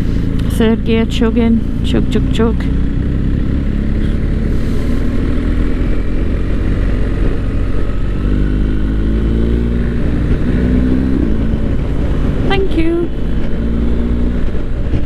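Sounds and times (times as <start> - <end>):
motorcycle engine chugging: 0.0 - 8.3.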